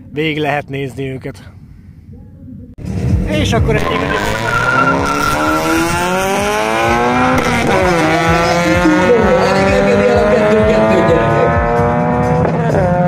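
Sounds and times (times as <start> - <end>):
car accelerating at full throttle: 2.8 - 13.0.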